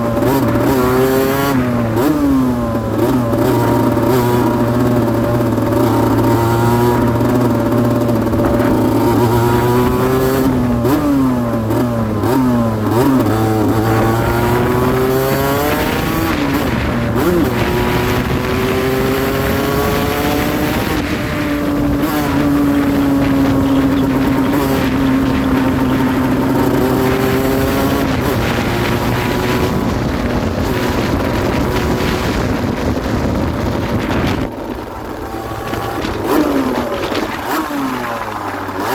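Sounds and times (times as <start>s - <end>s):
two-stroke motorcycle engine revving: 0.0s - 38.9s.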